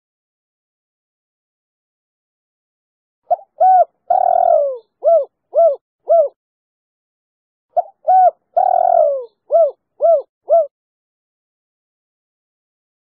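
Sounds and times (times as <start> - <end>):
dove cooing: 3.3 - 6.4, 7.8 - 10.7.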